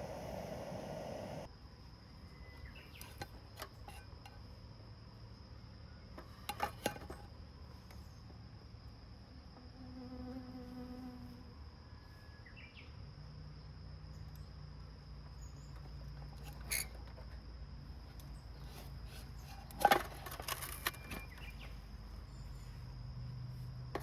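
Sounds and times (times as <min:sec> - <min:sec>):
high thin insect tone: 0:00.0 - 0:06.9
fly buzzing: 0:09.6 - 0:11.4.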